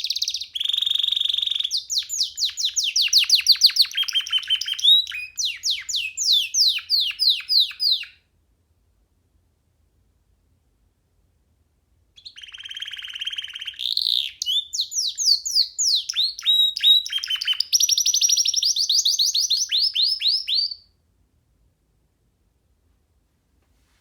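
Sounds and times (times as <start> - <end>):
canary singing trills: 0.0 - 8.2, 12.2 - 20.9.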